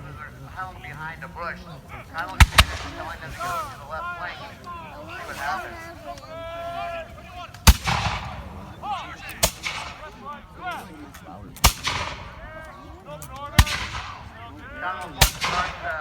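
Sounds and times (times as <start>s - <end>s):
faint voices: 0.0s - 16.0s
musket shots: 2.3s - 3.6s, 7.6s - 8.6s, 9.3s - 10.1s, 11.6s - 12.5s, 13.6s - 14.3s, 15.0s - 16.0s.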